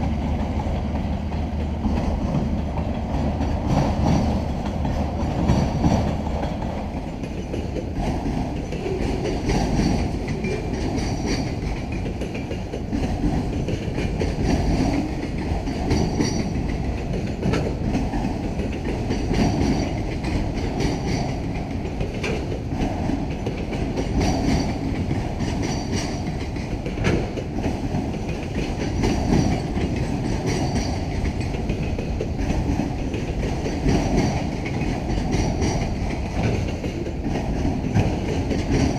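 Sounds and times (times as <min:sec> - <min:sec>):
clickety-clack over rail joints: 0:00.0 - 0:38.9
train wheels rumbling on rail: 0:00.0 - 0:38.9.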